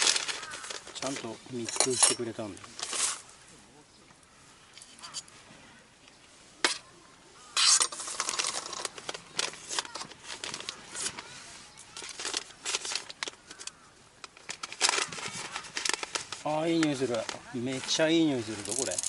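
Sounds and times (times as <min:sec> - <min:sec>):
coffee bean packet crinkling: 0:00.0 - 0:03.2, 0:07.6 - 0:19.0.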